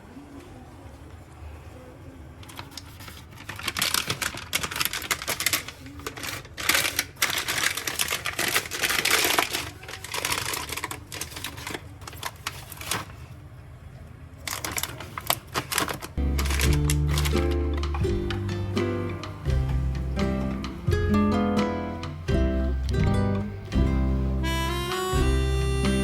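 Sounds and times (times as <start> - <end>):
clicking and rustling of packaging: 2.4 - 13.4, 14.4 - 18.5.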